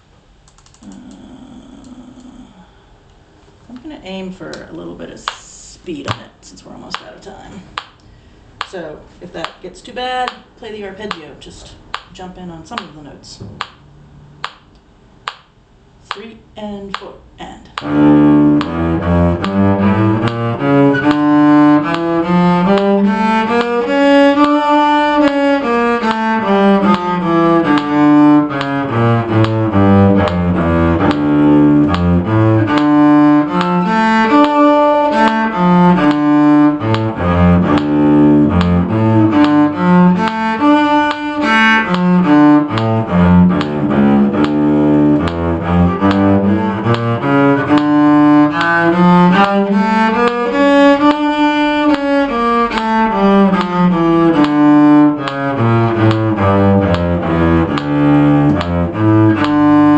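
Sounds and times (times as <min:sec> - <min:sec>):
low bowed string instrument scale: 0:17.8 - 0:59.9.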